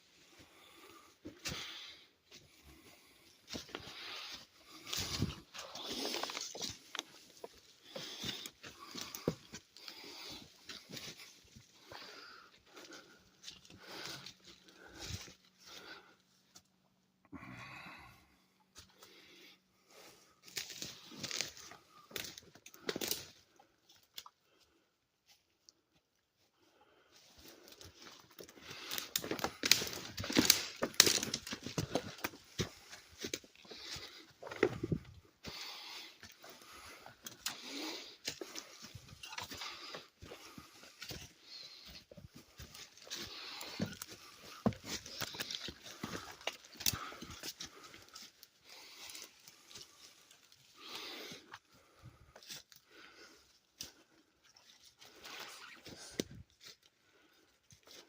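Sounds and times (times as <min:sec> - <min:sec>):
footsteps crunching through brush: 0:00.5 - 0:16.1, 0:20.0 - 0:23.3, 0:27.2 - 0:51.4
twigs snapping: 0:28.8 - 0:32.4
footsteps crunching through leaf litter: 0:37.6 - 0:51.2.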